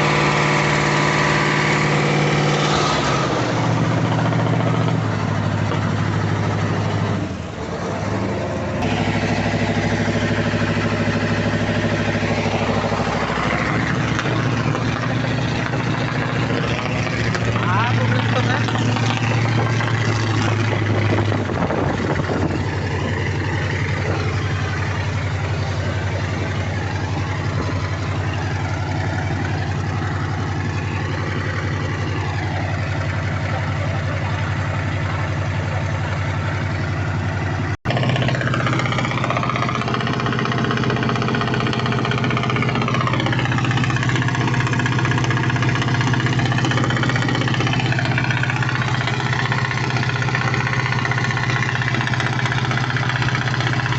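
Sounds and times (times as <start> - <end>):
boat diesel engine humming: 0.0 - 53.9.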